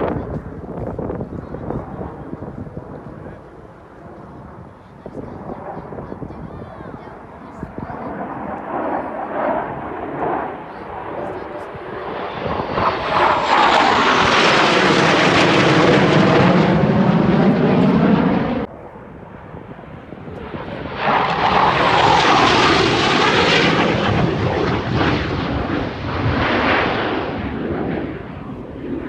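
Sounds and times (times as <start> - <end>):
fighter jets flying past: 0.0 - 29.0.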